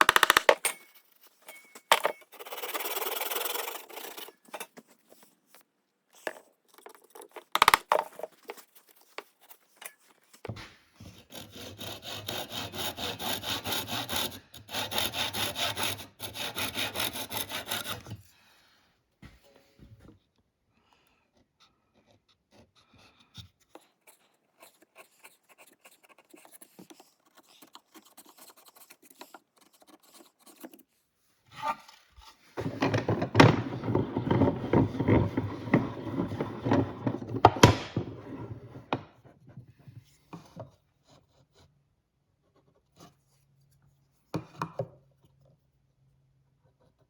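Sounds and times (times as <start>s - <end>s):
hand tool scraping wood: 0.0s - 5.6s, 6.2s - 18.2s, 31.5s - 39.2s.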